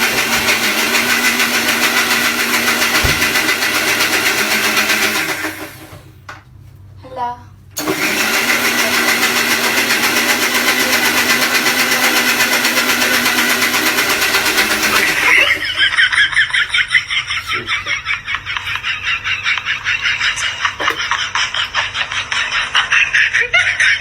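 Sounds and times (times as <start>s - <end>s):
mixer grinder whirring: 0.0s - 6.3s, 7.8s - 16.5s.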